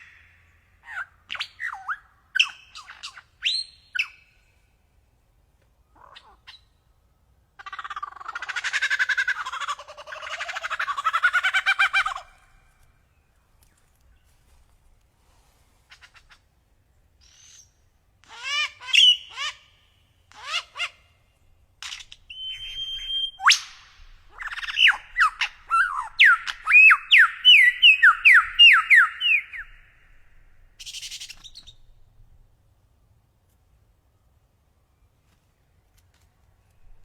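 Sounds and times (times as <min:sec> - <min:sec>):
songbird singing: 0:16.2 - 0:18.0, 0:21.1 - 0:33.2.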